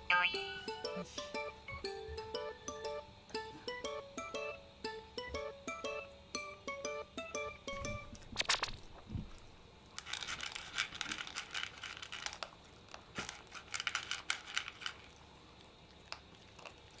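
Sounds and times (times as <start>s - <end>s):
dog crunching dry kibble: 10.0s - 17.0s.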